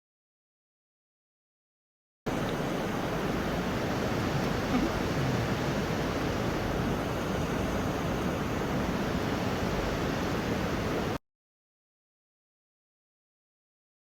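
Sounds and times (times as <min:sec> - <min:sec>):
rushing water: 0:02.3 - 0:11.2.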